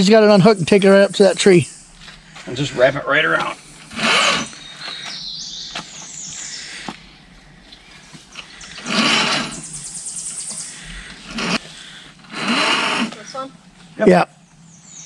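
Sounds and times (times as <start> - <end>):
bird singing high notes: 0.4 - 1.9, 9.5 - 10.9
loud bursts of noise: 3.7 - 4.6, 8.7 - 9.7, 11.0 - 13.2.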